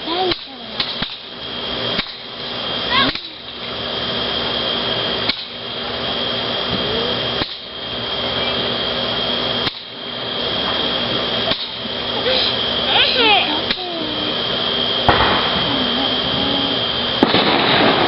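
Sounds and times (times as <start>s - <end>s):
firework fountain hissing: 0.0s - 18.0s
sharp firework crack: 15.0s - 16.3s, 17.2s - 18.0s.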